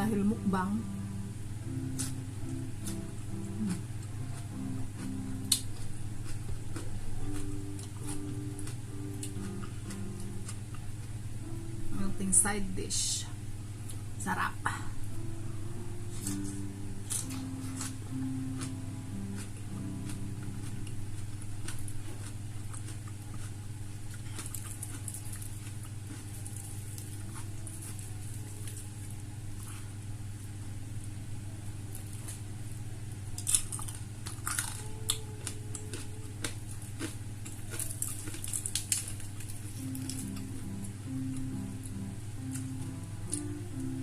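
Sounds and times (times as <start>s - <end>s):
steady low hum: 0.0s - 44.0s
chewing and lip smacks: 19.4s - 28.8s
crunchy bites: 33.3s - 40.4s.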